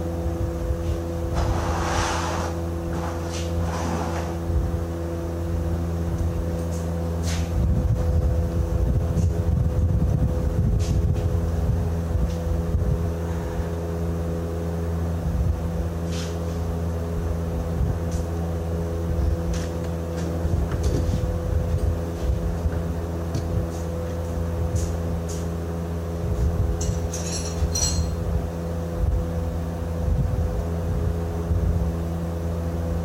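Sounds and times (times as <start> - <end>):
engine running steadily: 0.0 - 33.0
short knocks and clinks: 26.8 - 28.2.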